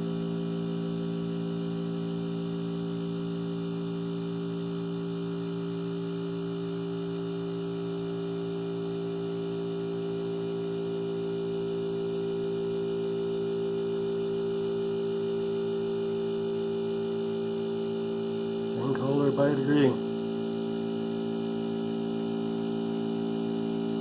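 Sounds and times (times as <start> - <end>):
compressor humming: 18.6 - 20.0.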